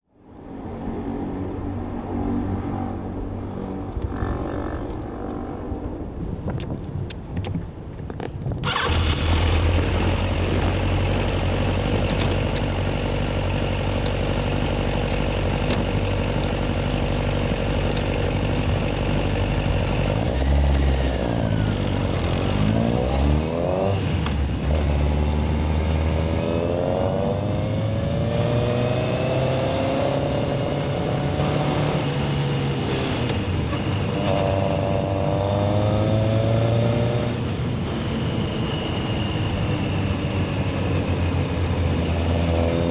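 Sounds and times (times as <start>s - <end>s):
motorcycle engine revving: 8.6s - 42.9s.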